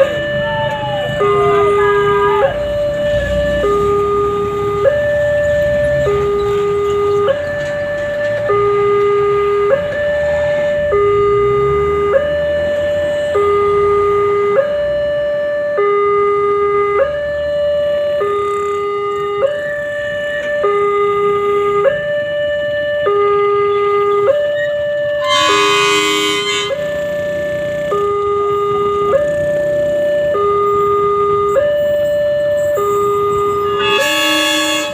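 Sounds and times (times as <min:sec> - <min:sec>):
two-tone crossing alarm: 0:00.0 - 0:34.9
train horn blast: 0:25.2 - 0:27.0, 0:33.3 - 0:34.9.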